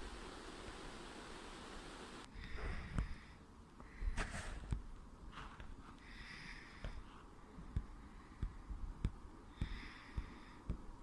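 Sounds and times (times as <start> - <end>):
person breathing: 2.2 - 4.8, 5.4 - 11.0.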